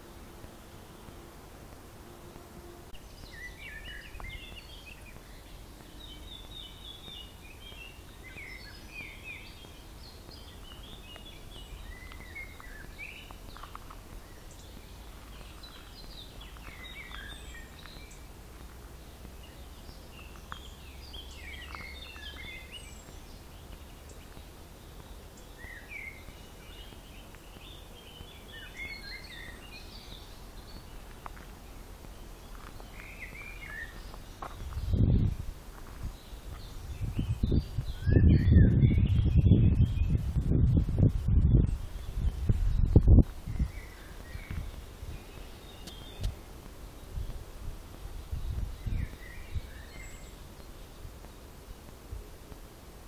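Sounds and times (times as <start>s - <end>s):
low steady rumble: 0.0s - 28.5s
songbird singing: 0.0s - 53.0s.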